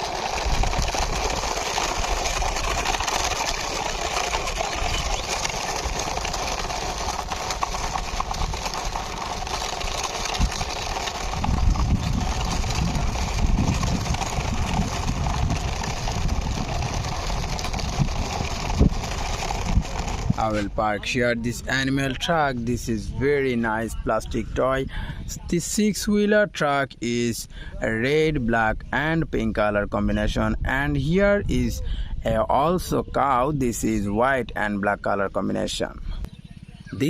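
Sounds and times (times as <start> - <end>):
low rumble: 0.0 - 25.3
toy truck wheels rolling over ground: 0.0 - 37.0.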